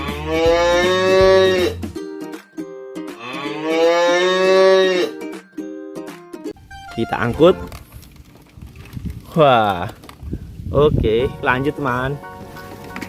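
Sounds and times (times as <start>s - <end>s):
cow mooing: 0.0s - 1.8s, 3.2s - 5.2s
plucked-string background music: 0.0s - 7.8s, 11.2s - 13.0s.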